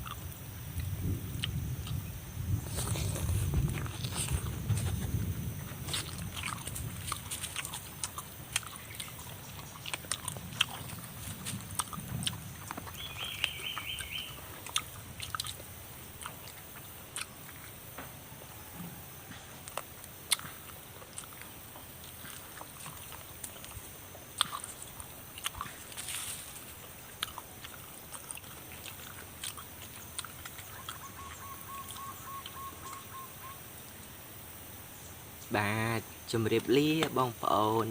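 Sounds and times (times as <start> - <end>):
chewing and biting food: 0.0 - 2.0, 2.6 - 18.1, 18.9 - 33.1
mouth smacks and clicks: 5.8 - 17.8, 19.4 - 33.1.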